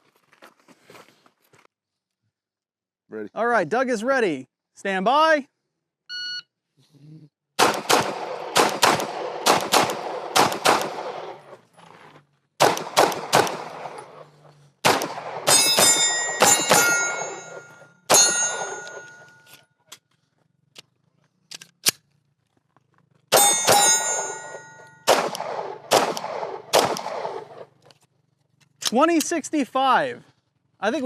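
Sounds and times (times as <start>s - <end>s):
pistol shots: 7.6s - 11.6s, 12.6s - 19.3s, 23.3s - 27.7s
bullets ringing on steel targets: 15.1s - 19.5s, 23.3s - 27.2s.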